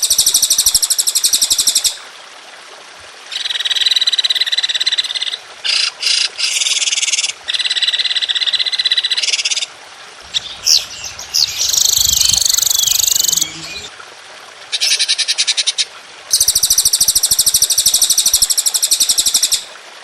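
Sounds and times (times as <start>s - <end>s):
songbird rattling trills: 10.2s - 13.9s
low rumble: 10.2s - 14.0s.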